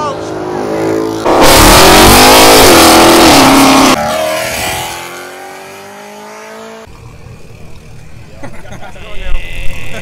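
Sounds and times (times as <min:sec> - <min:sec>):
car engine revving: 0:00.2 - 0:07.6.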